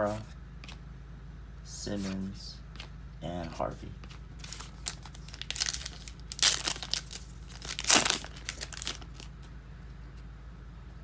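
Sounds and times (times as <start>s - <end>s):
plastic wrapper crinkling and tearing: 4.4s - 9.3s.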